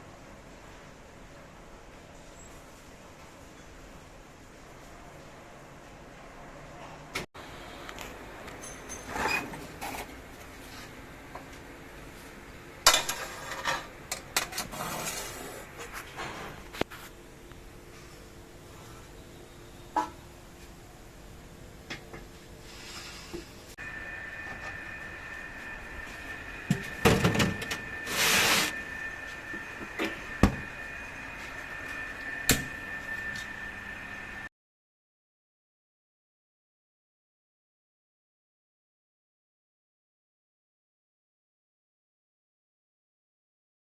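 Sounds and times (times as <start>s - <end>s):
machinery high-pitched whine: 23.8s - 34.5s.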